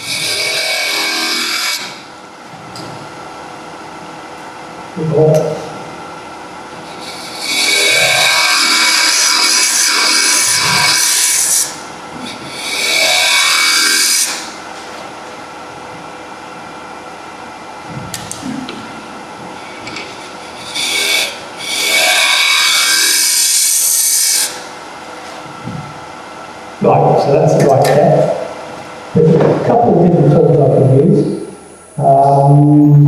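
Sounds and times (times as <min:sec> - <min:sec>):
lathe tool cutting wood hissing: 0:00.0 - 0:02.0, 0:06.8 - 0:14.8, 0:19.5 - 0:24.8
wood lathe running: 0:00.0 - 0:02.2, 0:06.6 - 0:15.5, 0:19.0 - 0:25.3.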